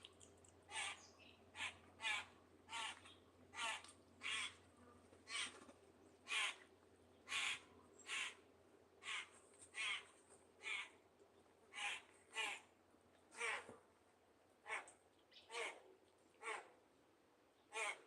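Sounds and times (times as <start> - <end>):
bird raspy caw-like call: 0.7 - 4.6, 5.3 - 5.5, 6.3 - 6.6, 7.3 - 8.4, 9.0 - 10.0, 10.6 - 11.0, 11.7 - 12.7, 13.4 - 13.7, 15.5 - 15.8, 17.7 - 18.0.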